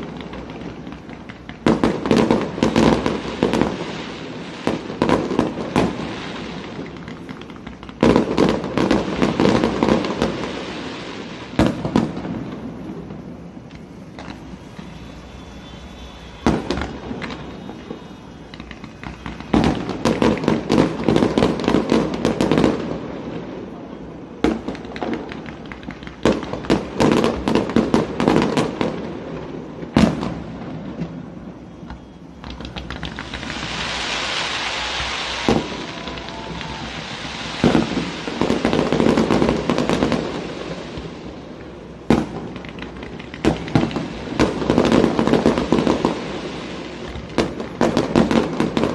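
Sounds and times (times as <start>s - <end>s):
fireworks crackle: 0.0s - 48.9s
high hiss: 33.1s - 38.7s.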